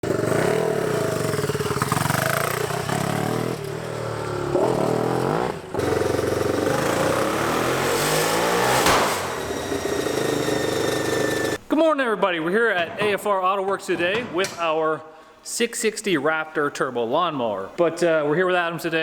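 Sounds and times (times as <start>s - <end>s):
lawn mower engine revving: 0.0s - 11.6s
sharp crack: 8.7s - 9.6s.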